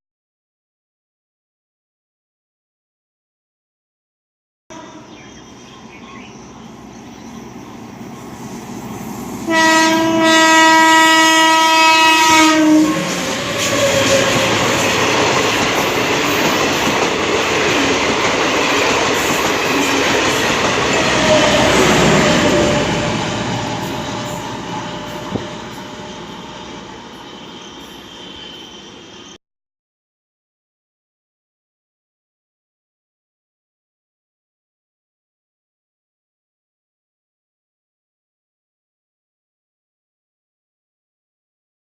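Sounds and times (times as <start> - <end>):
train horn blast: 4.7 - 5.3, 9.4 - 15.1, 20.8 - 27.6
train passing with wheel clatter: 4.8 - 29.4.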